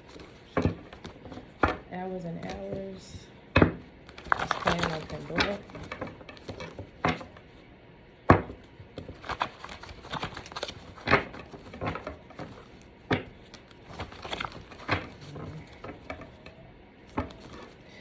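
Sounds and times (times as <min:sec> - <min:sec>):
cards being shuffled: 0:00.0 - 0:01.8, 0:04.0 - 0:07.4, 0:08.9 - 0:17.8.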